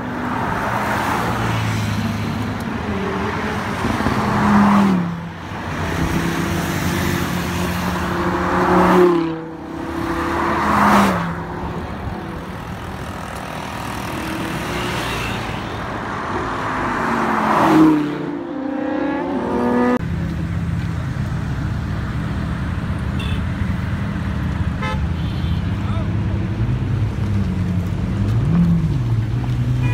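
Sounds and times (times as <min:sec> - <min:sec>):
supercars passing at speed: 0:00.0 - 0:20.7
engines rumbling at low speed: 0:19.1 - 0:29.9.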